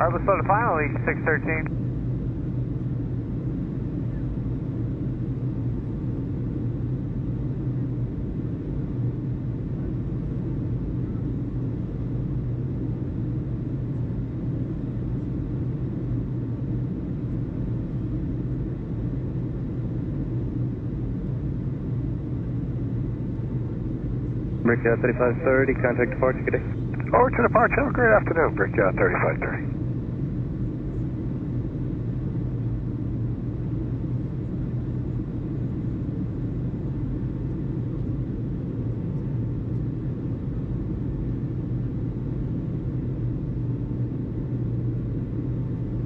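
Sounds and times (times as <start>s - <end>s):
distant jet engine noise: 0.0s - 1.7s, 24.3s - 29.8s.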